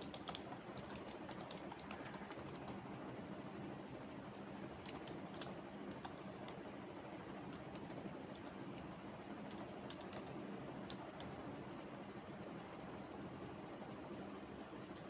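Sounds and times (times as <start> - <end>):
computer keyboard typing: 0.0 - 2.9, 4.7 - 6.7, 7.4 - 11.5, 12.2 - 13.2
low background hum: 0.0 - 15.0.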